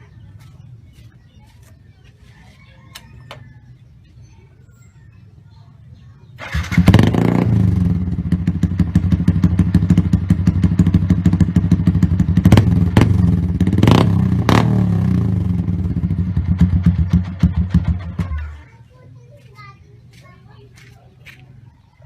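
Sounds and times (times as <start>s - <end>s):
motorcycle engine idling: 6.3s - 18.8s.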